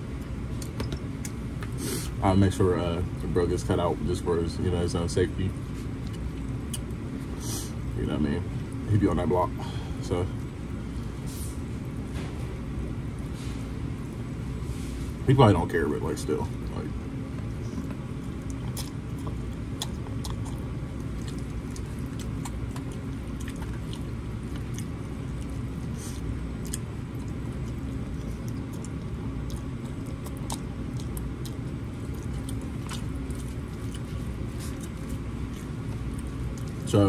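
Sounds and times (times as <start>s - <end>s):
low background rumble: 0.0s - 37.0s
person chewing food: 5.5s - 7.4s, 17.3s - 37.0s.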